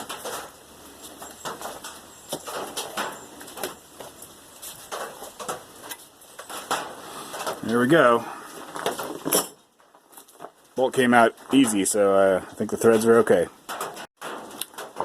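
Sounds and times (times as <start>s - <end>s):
metal parts clicking and scraping: 8.6s - 10.5s.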